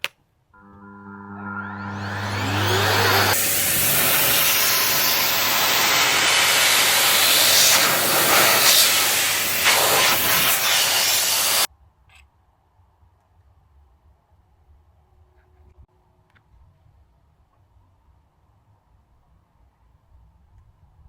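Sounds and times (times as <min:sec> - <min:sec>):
high-pressure jet hissing: 0:01.7 - 0:11.7.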